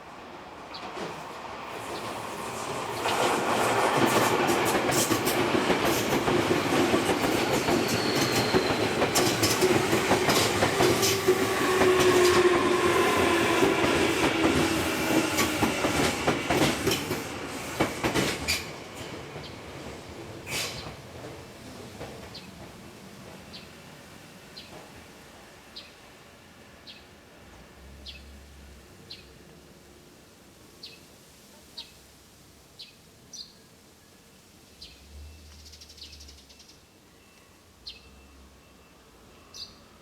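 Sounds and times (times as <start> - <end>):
electric train passing: 0.0 - 30.2
wheels clacking over rail joints: 2.9 - 12.7.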